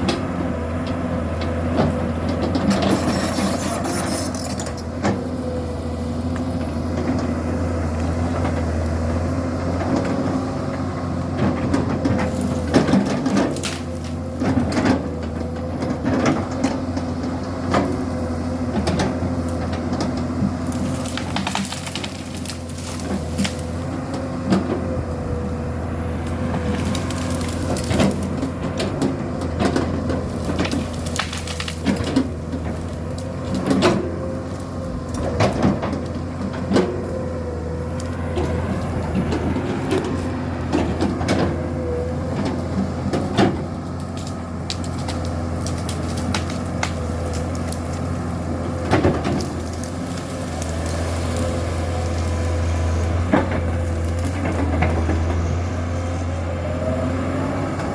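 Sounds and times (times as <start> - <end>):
excavator diesel engine running: 0.0 - 57.9
hydraulic whine: 2.5 - 5.4
sharp cracks and knocks: 11.4 - 24.8, 26.2 - 37.2, 42.3 - 55.5.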